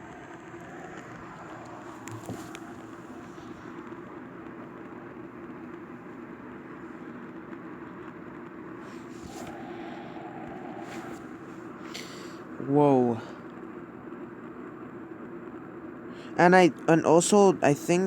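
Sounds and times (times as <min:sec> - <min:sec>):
low hum: 0:00.0 - 0:04.5, 0:08.6 - 0:13.5
airliner cabin and engine drone: 0:00.0 - 0:07.1, 0:08.6 - 0:13.5.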